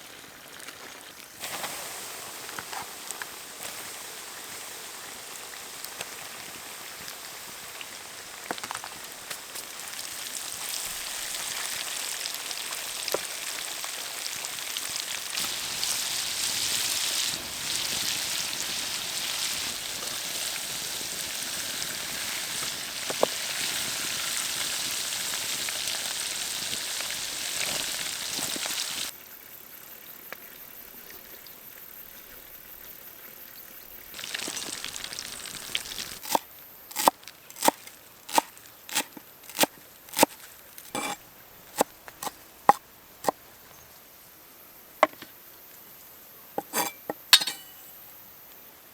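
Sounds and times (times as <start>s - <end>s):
food sizzling in hot oil: 0.1s - 29.1s, 34.1s - 42.8s, 46.6s - 47.8s
oil popping: 34.2s - 43.4s.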